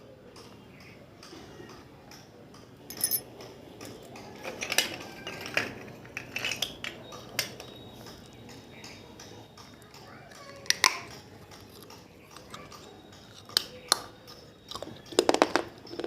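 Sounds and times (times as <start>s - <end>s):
clay lamps clinking together: 2.9s - 3.3s, 4.4s - 9.8s.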